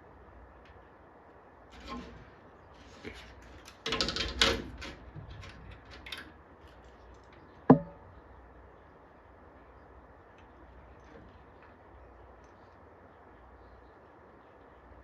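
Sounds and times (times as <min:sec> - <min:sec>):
sharp knock with ring: 0:07.7 - 0:08.0.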